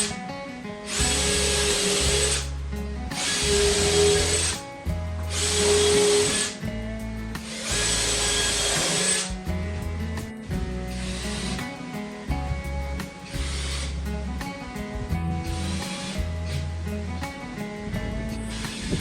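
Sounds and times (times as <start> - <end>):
power tool running: 0.0 - 0.2, 0.8 - 4.7, 5.3 - 6.7, 7.4 - 9.5, 10.4 - 11.8, 13.0 - 14.1, 15.4 - 16.6, 18.5 - 19.0
background music: 0.0 - 19.0.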